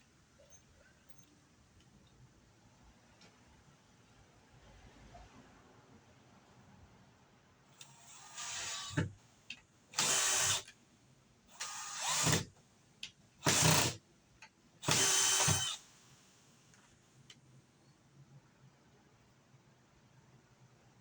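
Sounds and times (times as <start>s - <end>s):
handheld power tool bursts: 7.8s - 9.1s, 10.0s - 10.7s, 11.6s - 12.5s, 13.4s - 14.0s, 14.8s - 15.9s.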